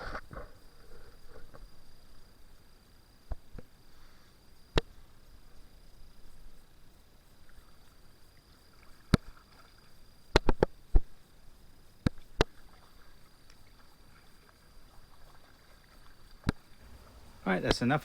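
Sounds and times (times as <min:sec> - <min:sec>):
kayak paddling: 0:12.5 - 0:18.0.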